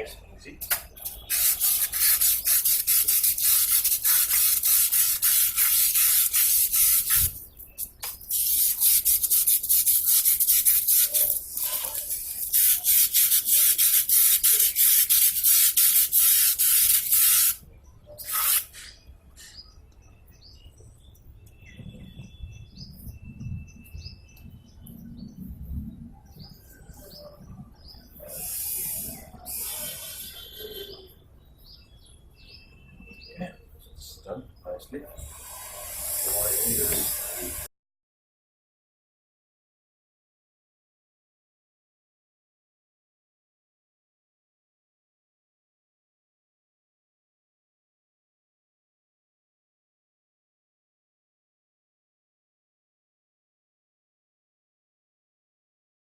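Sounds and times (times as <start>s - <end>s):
sandpaper rubbing: 1.3s - 7.4s, 8.3s - 17.6s, 18.2s - 19.0s, 35.8s - 37.7s
faint bird chirps: 17.2s - 35.2s.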